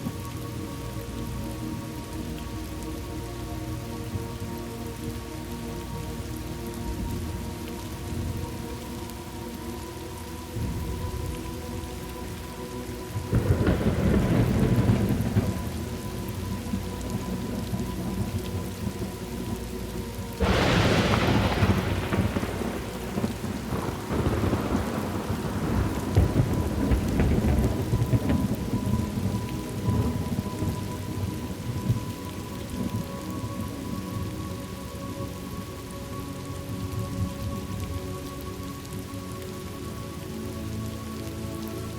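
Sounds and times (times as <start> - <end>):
steady rain: 0.0 - 41.9
thunder rolling: 13.2 - 19.1, 20.4 - 32.2.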